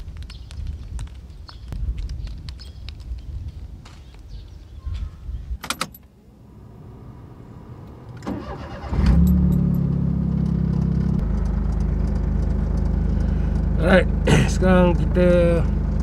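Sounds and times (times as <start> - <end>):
car engine idling: 6.4 - 16.0
car engine starter cranking: 8.1 - 13.7.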